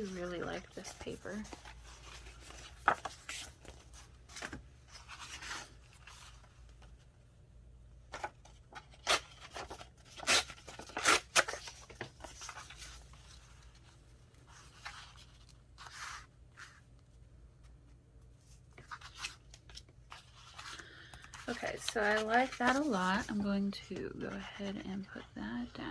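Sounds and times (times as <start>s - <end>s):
paper being handled and torn: 8.7s - 13.1s, 21.3s - 23.5s.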